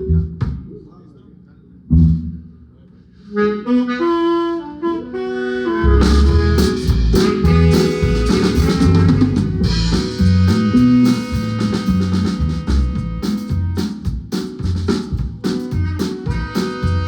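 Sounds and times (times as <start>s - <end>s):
bass: 0.0s - 17.0s
drum kit beats: 0.3s - 0.9s, 6.0s - 17.0s.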